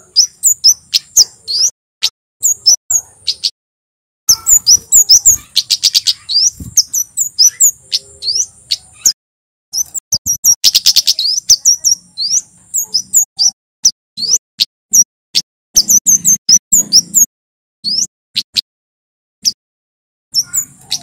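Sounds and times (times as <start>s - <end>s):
bird singing high thin chirps: 0.0s - 3.6s, 4.3s - 18.7s, 20.3s - 21.0s.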